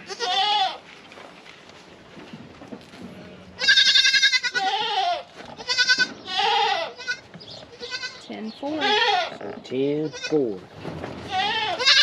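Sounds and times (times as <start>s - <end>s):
goat bleating: 0.0s - 0.8s, 3.2s - 10.6s, 11.2s - 12.0s.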